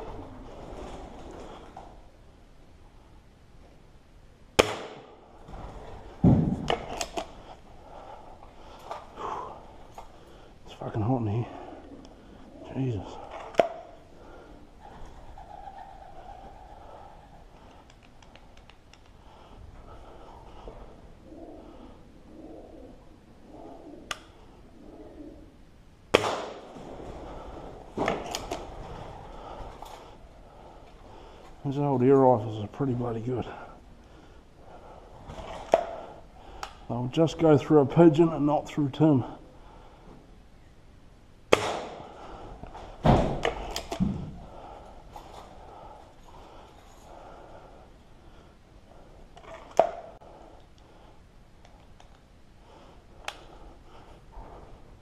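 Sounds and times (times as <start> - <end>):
air rifle shot: 4.6 - 5.2, 26.1 - 26.7, 41.5 - 42.1
sharp knocks and clatters: 4.6 - 7.2
heavy breathing: 5.3 - 15.3, 16.1 - 18.1, 19.0 - 25.6, 26.6 - 37.0, 39.2 - 40.4, 41.8 - 51.4, 52.5 - 55.0
heavy thud: 6.2 - 6.8, 43.0 - 44.4.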